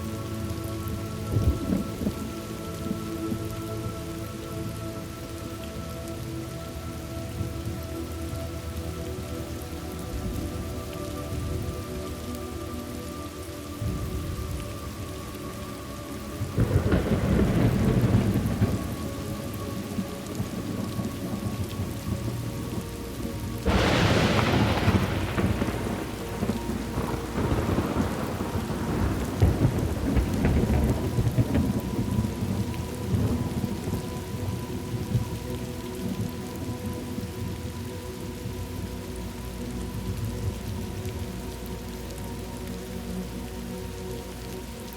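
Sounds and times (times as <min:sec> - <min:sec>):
steady rain: 0:00.0 - 0:44.9
thunder rumbling and cracking: 0:01.0 - 0:03.5, 0:16.4 - 0:37.6.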